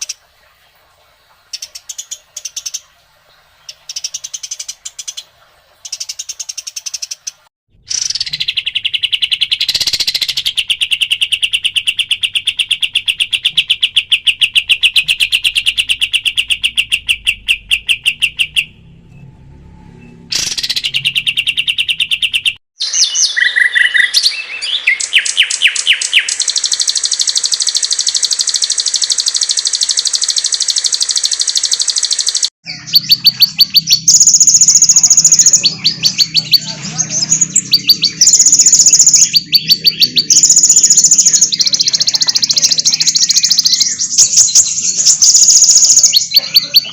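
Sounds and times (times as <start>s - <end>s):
recorded songbird trills: 1.4s - 18.9s, 20.0s - 46.9s
low hum: 17.4s - 21.5s.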